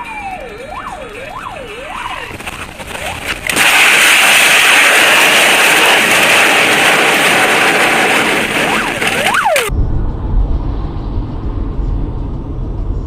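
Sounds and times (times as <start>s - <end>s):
low rumble inside car cabin: 9.7s - 13.0s.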